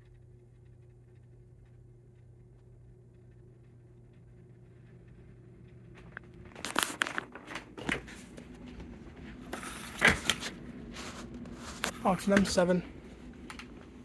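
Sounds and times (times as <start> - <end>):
ceiling fan motor humming: 0.0 - 14.0
sharp clicks and handling rustle: 6.0 - 8.9.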